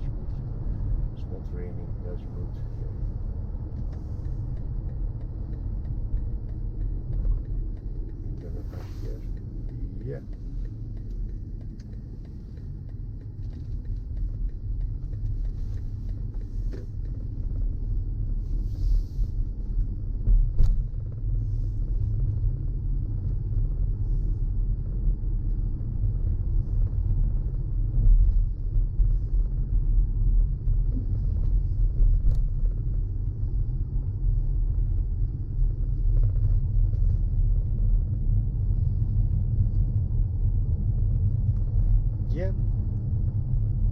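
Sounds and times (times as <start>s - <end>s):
car engine and road noise: 0.0s - 43.9s.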